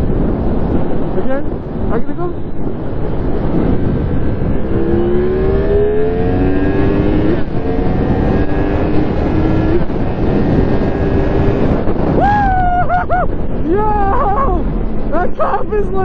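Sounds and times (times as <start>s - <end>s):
wind noise on microphone: 0.0s - 16.0s
motorcycle engine accelerating: 2.7s - 15.3s.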